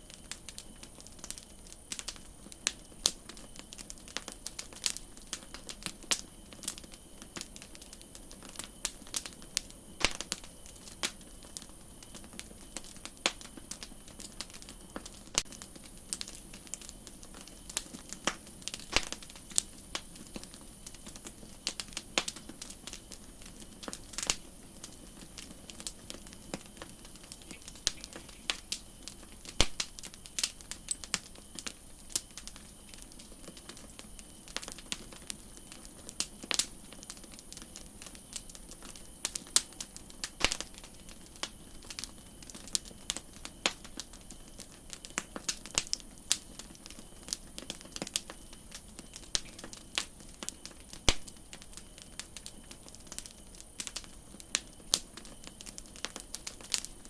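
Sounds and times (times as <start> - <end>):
steady high hiss: 0.0 - 44.6
campfire crackling: 0.0 - 57.0.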